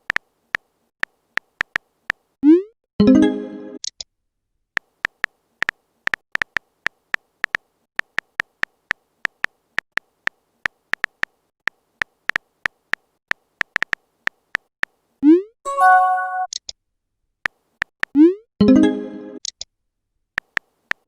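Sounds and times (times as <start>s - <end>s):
electronic message tone: 15.7s - 16.5s.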